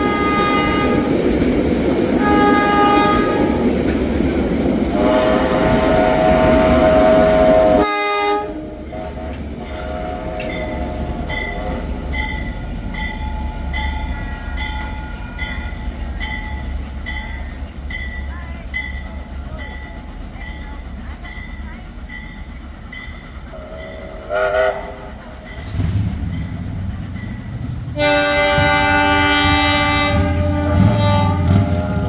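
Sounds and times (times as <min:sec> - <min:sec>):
train horn blast: 0:00.0 - 0:01.2, 0:02.2 - 0:03.7, 0:04.9 - 0:11.8, 0:23.5 - 0:26.0, 0:27.9 - 0:32.0
wheels clicking over rail joints: 0:00.0 - 0:07.9, 0:08.7 - 0:32.0
train rumbling: 0:00.0 - 0:32.0.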